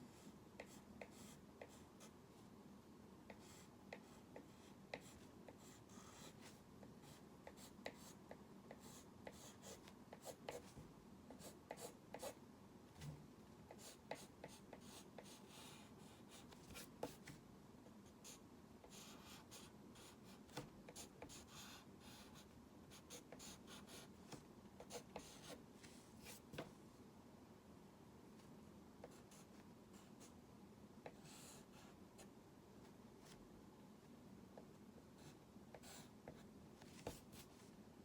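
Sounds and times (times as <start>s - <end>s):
pen scratching on drawing surface: 24.8s - 26.4s.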